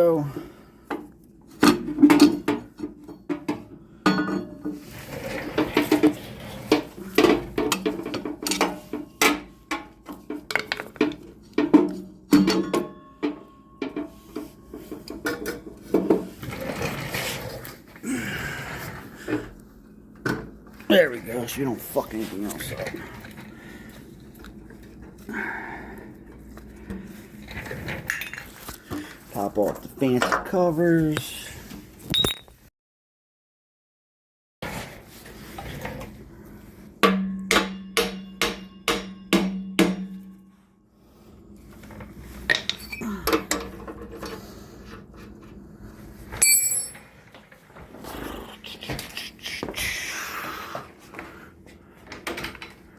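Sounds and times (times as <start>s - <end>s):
metal tools clinking and knocking: 1.6s - 4.7s, 42.5s - 43.9s, 46.4s - 47.1s
metal scraping and shuffling: 4.4s - 18.0s
hammer blows on metal ringing: 37.0s - 40.4s.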